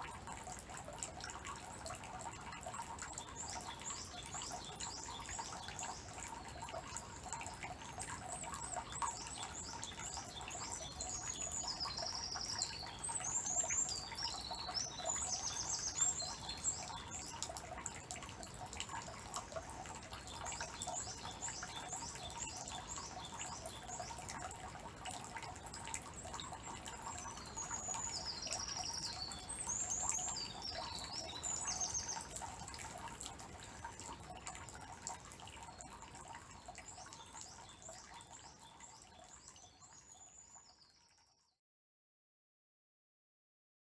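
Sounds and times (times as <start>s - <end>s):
water trickling into stone basin: 0.0s - 41.4s
songbird singing: 8.4s - 17.5s, 26.5s - 32.4s.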